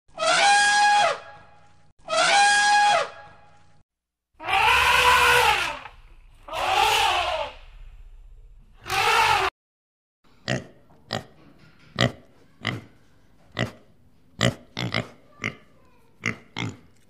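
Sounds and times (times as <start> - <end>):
elephant trumpeting: 4.4 - 5.9, 6.5 - 7.7, 8.8 - 9.5.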